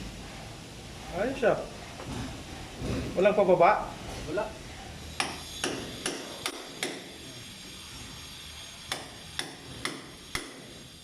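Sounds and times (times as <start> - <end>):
sharp hammer strikes: 5.2 - 7.2, 8.9 - 10.8.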